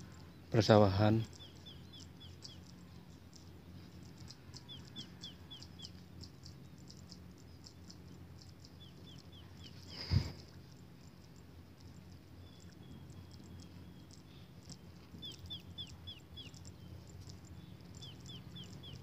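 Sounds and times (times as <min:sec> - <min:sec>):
faint low hum: 0:00.0 - 0:19.0
high ticks: 0:00.0 - 0:19.0
small bird chirping: 0:00.0 - 0:19.0.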